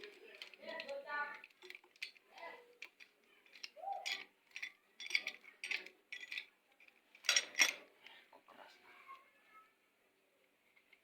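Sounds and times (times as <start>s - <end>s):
metal hand tools clinking: 0.0s - 6.5s, 7.2s - 7.8s.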